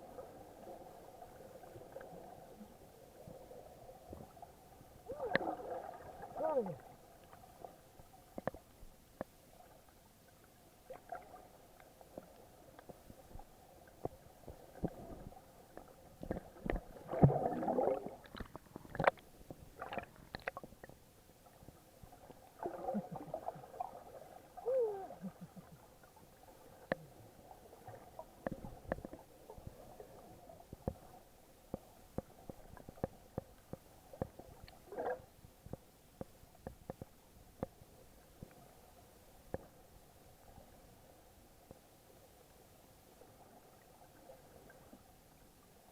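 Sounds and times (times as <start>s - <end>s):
underwater water gurgling: 0.0s - 39.8s
rush of water: 5.0s - 6.9s, 22.6s - 25.7s.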